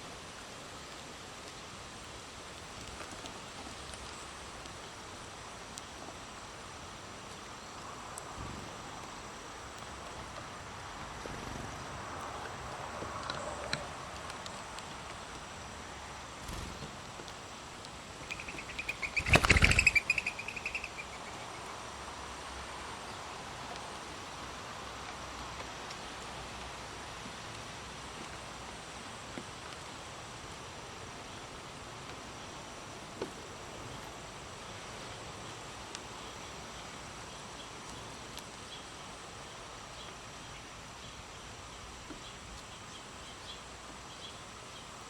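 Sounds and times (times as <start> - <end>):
wind through leaves: 0.0 - 45.0
loud wing flaps: 16.4 - 17.2, 18.3 - 20.7
whistling wing notes: 18.2 - 21.2.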